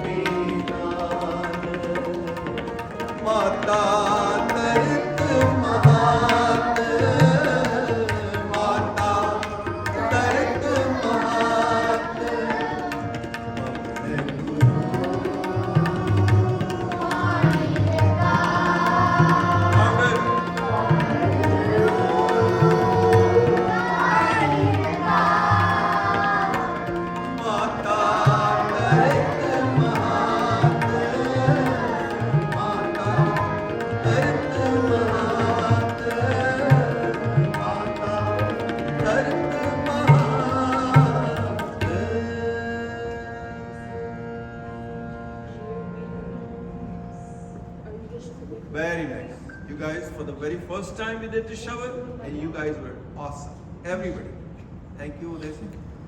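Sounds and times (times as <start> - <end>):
tabla rhythm: 0.0 - 42.8
group singing: 0.0 - 43.1.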